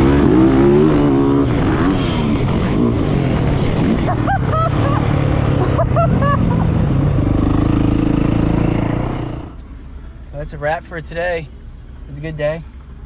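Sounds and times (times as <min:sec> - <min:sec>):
dirt bike engine droning: 0:00.0 - 0:10.1.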